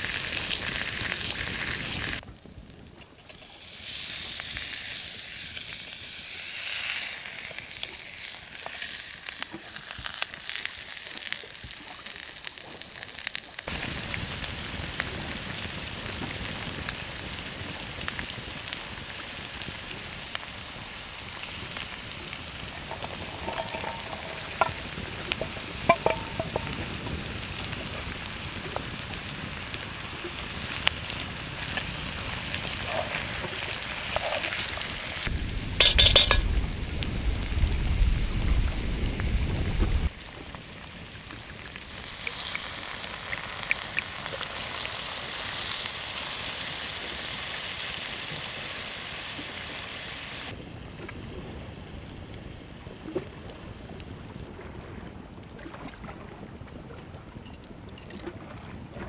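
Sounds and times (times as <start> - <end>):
food sizzling in hot fat: 0.0 - 2.2, 3.3 - 40.2, 41.1 - 50.6
crackles: 0.0 - 54.5
light clinks: 22.9 - 26.8, 35.8 - 36.5.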